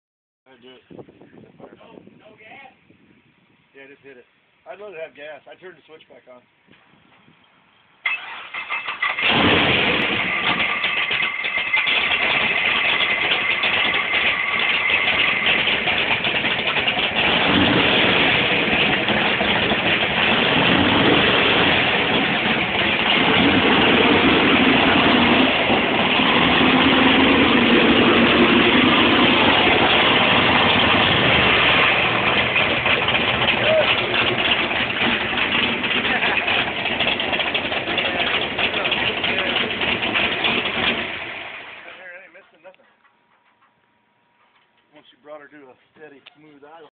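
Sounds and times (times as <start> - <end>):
engine cranking and idling: 8.0 - 42.2.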